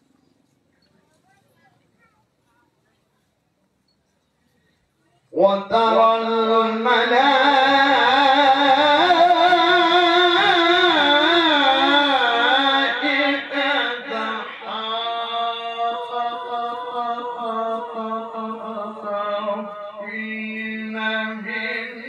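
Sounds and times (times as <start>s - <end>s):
man reciting melodically: 5.3s - 22.0s.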